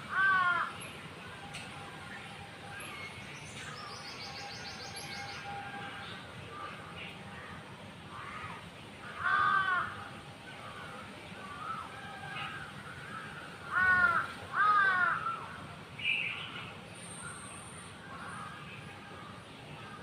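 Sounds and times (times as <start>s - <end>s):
crow cawing: 0.1s - 0.8s, 8.1s - 10.0s, 11.5s - 15.4s.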